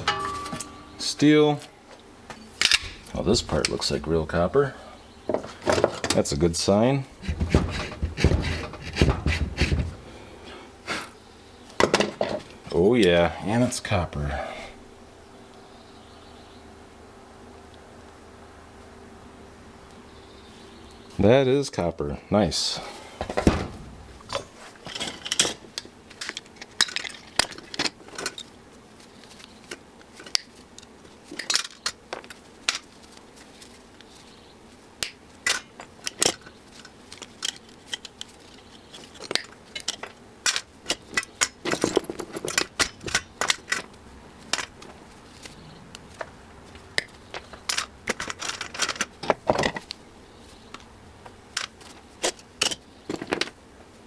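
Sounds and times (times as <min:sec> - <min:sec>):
metal scrap clinking: 0:00.0 - 0:01.3, 0:02.6 - 0:04.0, 0:23.2 - 0:25.6.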